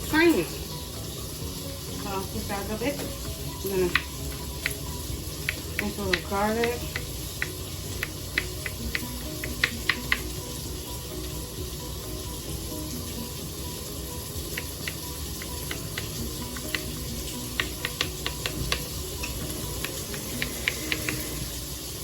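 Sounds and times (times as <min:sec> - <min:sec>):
bacon sizzling in a pot: 0:00.0 - 0:22.0
fat crackling and popping: 0:02.0 - 0:10.4.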